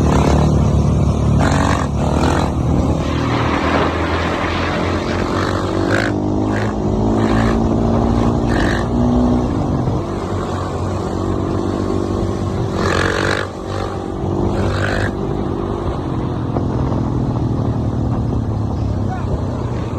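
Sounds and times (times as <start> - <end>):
dirt bike engine revving: 0.0 - 15.7
rushes of noise: 0.0 - 19.9.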